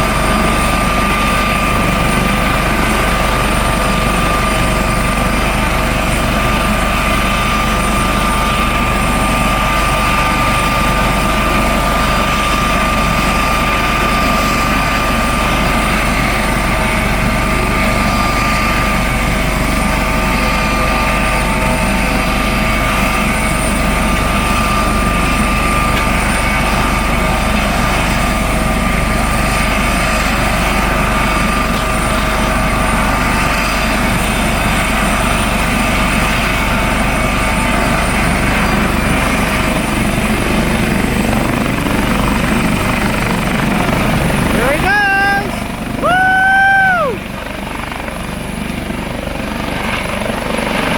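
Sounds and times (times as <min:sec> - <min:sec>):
helicopter turbine and rotor: 0:00.0 - 0:50.9.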